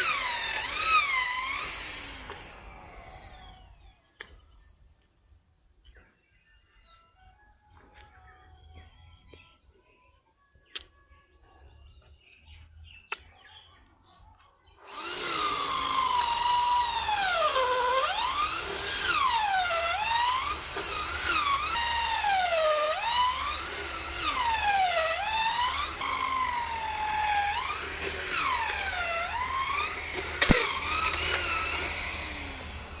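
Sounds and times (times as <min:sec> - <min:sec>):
power tool motor running: 0:00.0 - 0:04.0, 0:14.8 - 0:33.0.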